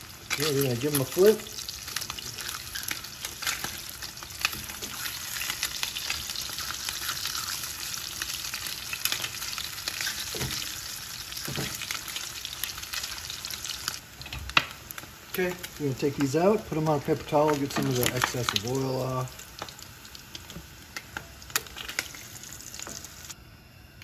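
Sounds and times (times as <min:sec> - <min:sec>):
meat sizzling in a frying pan: 0:00.0 - 0:23.4.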